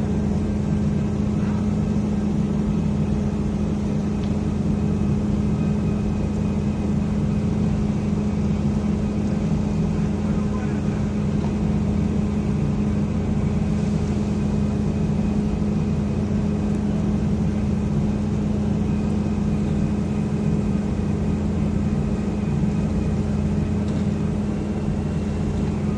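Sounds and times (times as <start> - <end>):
heavy machinery humming: 0.0 - 4.3.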